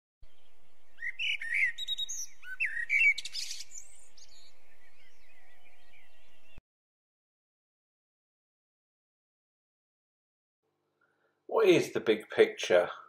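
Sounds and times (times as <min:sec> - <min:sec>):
bird chirps and whistles: 0:00.9 - 0:06.6.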